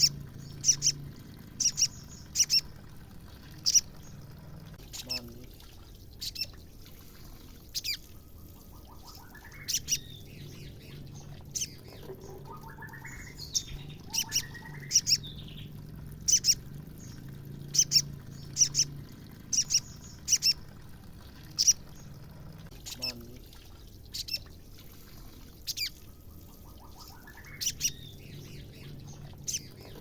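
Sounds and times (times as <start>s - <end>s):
bird chattering trill: 0.0s - 1.0s, 1.6s - 2.8s, 3.6s - 4.2s, 8.6s - 15.7s, 16.3s - 20.7s, 21.5s - 21.9s, 25.7s - 26.0s, 26.6s - 30.0s.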